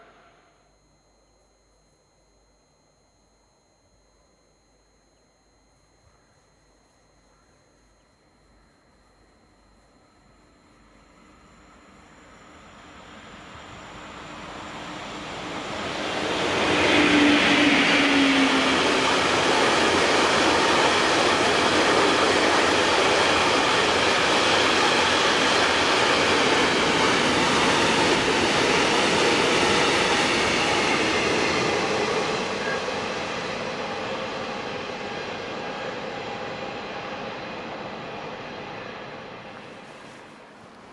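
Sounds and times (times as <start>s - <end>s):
train passing: 0.0s - 0.5s, 11.0s - 40.9s.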